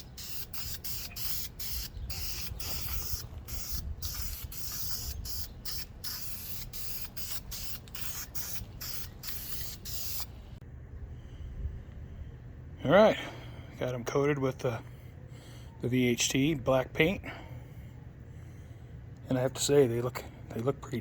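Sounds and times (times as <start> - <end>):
aerosol spray can hissing: 0.0 - 10.3.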